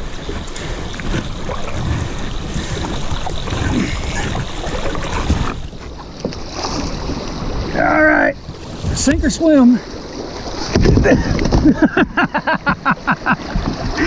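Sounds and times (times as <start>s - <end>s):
hull and paddle knocking: 0.0s - 7.7s, 10.4s - 12.2s
water rushing around hull: 0.0s - 14.0s.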